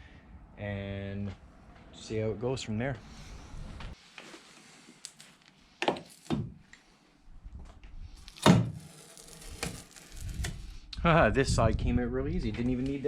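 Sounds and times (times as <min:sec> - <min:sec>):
trim strips pulled off car body: 0:04.9 - 0:06.4, 0:08.2 - 0:10.7.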